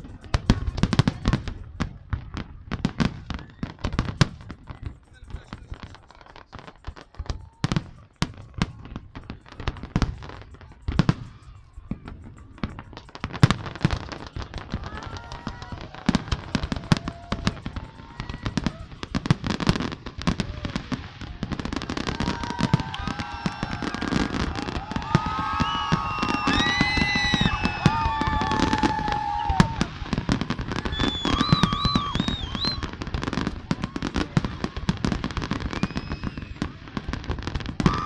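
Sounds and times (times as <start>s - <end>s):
fireworks bangs: 0.0s - 38.0s
fireworks crackling and popping: 0.0s - 38.0s
fireworks whistling glides: 0.0s - 38.0s.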